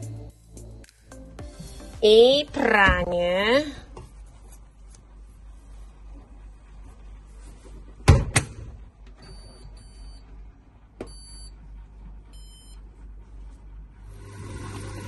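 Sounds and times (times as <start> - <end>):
washing machine door shutting: 8.0 - 8.8.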